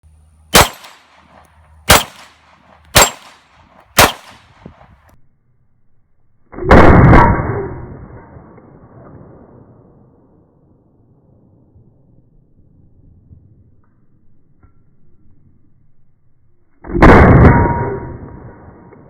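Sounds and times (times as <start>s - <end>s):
pistol shots hitting steel gong: 0.6s - 4.7s.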